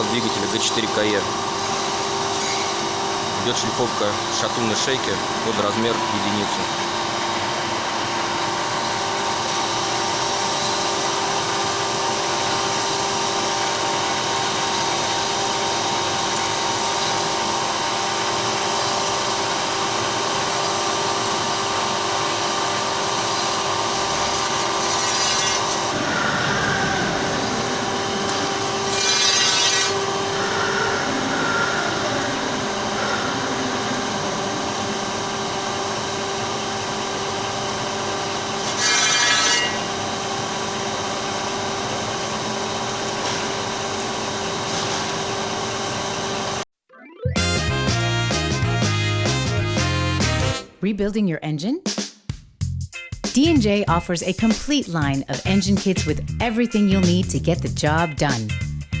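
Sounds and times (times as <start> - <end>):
grinding machine hiss: 0.0 - 46.6
machine hum: 0.0 - 46.7.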